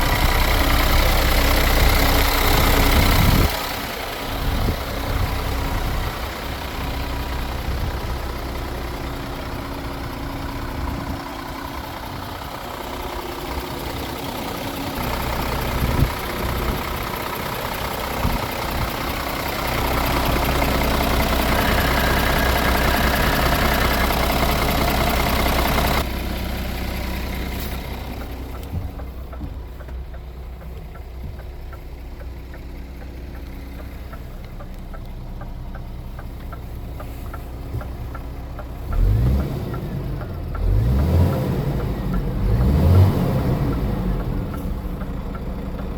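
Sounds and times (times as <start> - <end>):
truck diesel engine idling: 0.0 - 45.9.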